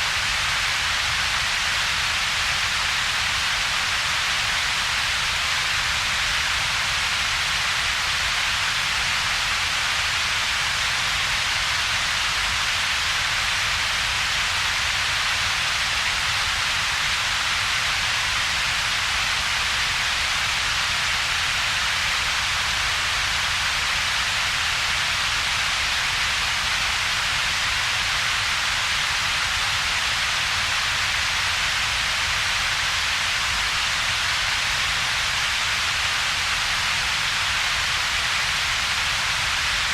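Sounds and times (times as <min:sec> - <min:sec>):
synthetic rumble and hiss noise: 0:00.0 - 0:39.9.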